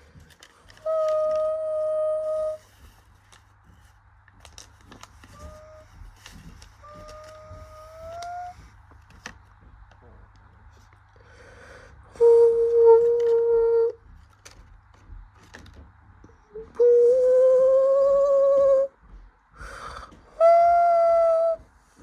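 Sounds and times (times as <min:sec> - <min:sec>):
person humming: 0:00.8 - 0:02.7, 0:05.3 - 0:08.7, 0:12.1 - 0:14.0, 0:16.4 - 0:19.0, 0:19.7 - 0:21.7.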